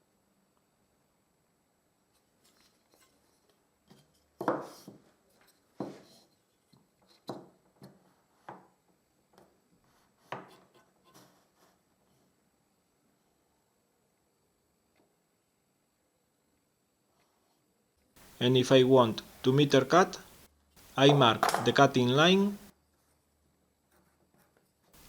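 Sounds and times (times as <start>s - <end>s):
wooden pieces knocking: 20.9s - 22.7s.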